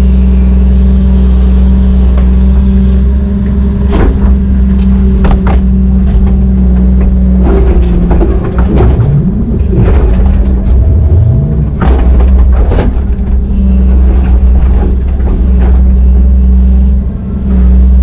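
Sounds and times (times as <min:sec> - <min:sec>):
diesel engine running: 0:00.0 - 0:18.0
metallic clanks and knocks: 0:05.2 - 0:16.0.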